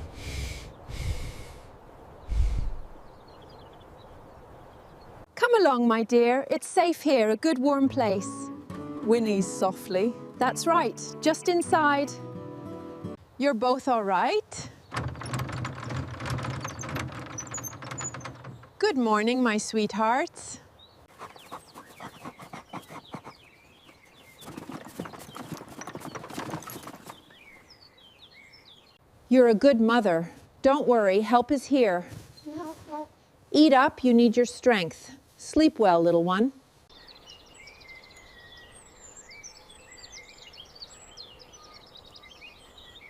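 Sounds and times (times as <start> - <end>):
small songbirds chirping: 0.0 - 5.3, 16.3 - 29.1, 36.8 - 43.0
horse hooves stepping: 21.2 - 27.6.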